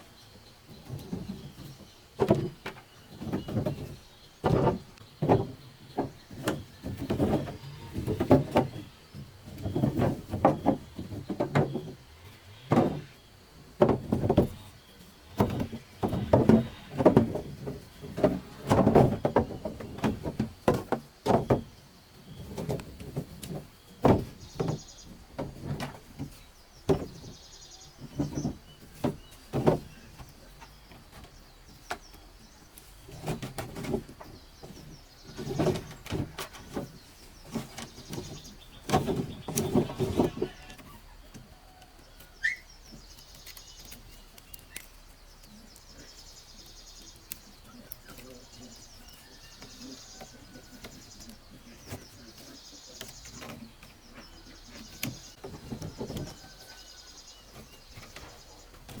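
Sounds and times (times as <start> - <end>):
knocks and thuds: 0.8 - 13.2, 13.8 - 14.7, 15.3 - 32.2, 33.1 - 40.8
sugarcane stalks rustling: 13.8 - 59.0
faint bird chirps: 34.2 - 59.0.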